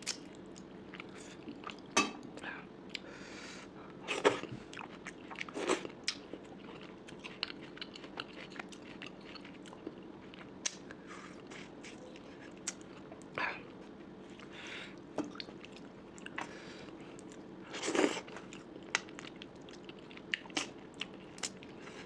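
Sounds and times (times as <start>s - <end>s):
chewing with wet clicks: 0.0s - 2.0s, 4.4s - 11.0s, 11.8s - 13.4s, 14.3s - 16.5s, 17.1s - 21.8s.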